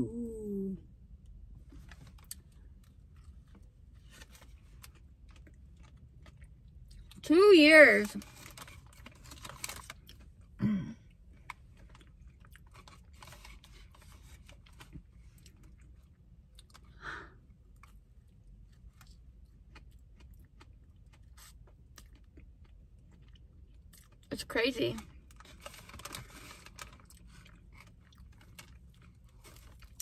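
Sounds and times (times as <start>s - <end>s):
person humming: 0.0s - 0.8s
person chewing donut: 9.9s - 24.3s.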